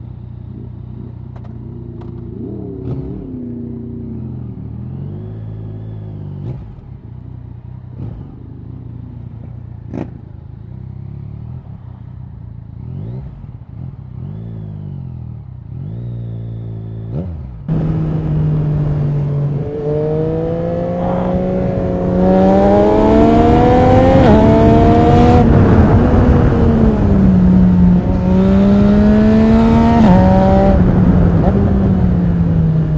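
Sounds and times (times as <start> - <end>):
motorcycle engine revving: 0.0 - 32.9
wind noise: 17.7 - 32.9.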